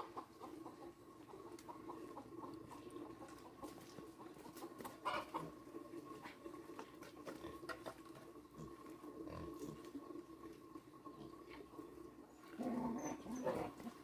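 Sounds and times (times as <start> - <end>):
chickens clucking faintly: 0.0 - 14.0.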